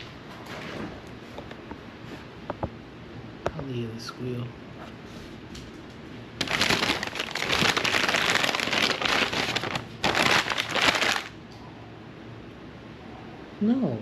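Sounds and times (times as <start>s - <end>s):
wrapper crinkling: 6.4s - 11.4s.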